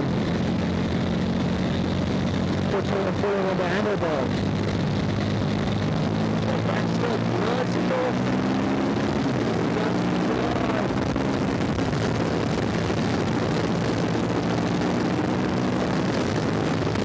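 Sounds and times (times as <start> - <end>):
motorcycle engine running hard: 0.0 - 17.0
wind rush over microphone: 0.0 - 17.0.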